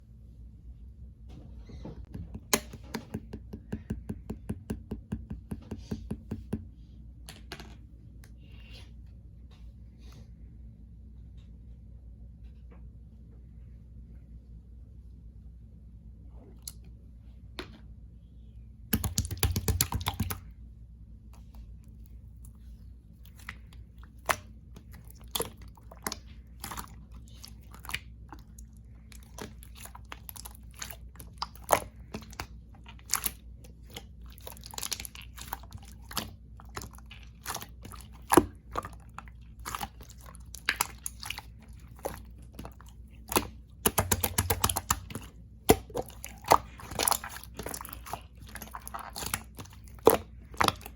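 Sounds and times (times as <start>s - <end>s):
slime clicking and popping: 18.9s - 20.4s, 39.6s - 50.9s
slime rapid crackling: 19.0s - 20.4s, 29.2s - 50.9s.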